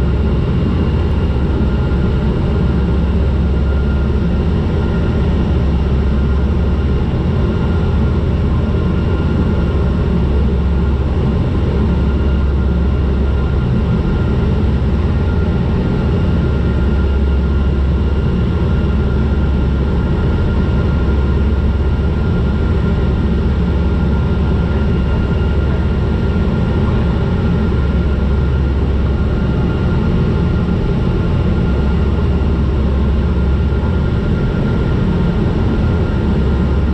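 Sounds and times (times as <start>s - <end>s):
airplane engine drone: 0.0s - 36.9s
high engine whine: 0.0s - 36.9s.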